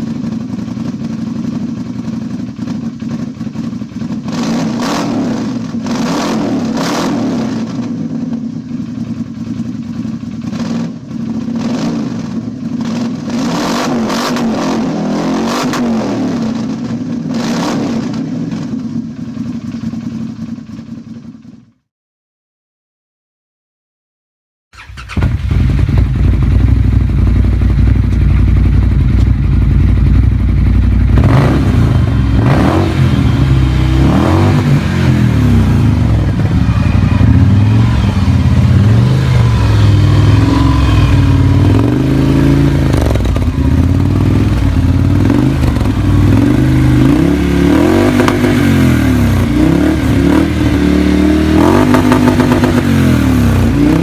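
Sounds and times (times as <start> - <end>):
off-road vehicle engine revving: 4.3 - 7.9, 11.6 - 12.3, 12.9 - 18.2, 31.0 - 54.0.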